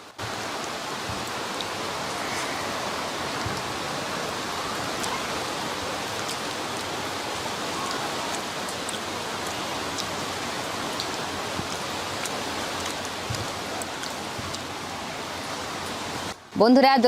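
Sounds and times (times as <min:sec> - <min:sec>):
heavy rain hiss: 0:00.0 - 0:16.8
raindrop ticks: 0:07.8 - 0:14.8.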